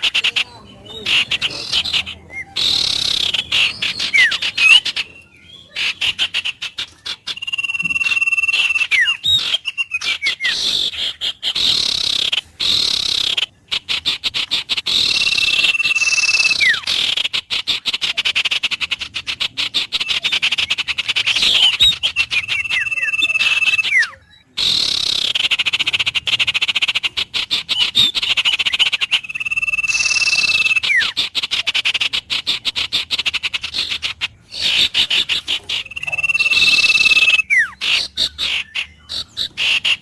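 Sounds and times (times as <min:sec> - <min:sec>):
chorus of bird calls: 0:00.0 - 0:40.0
bird whistled note: 0:35.8 - 0:37.8.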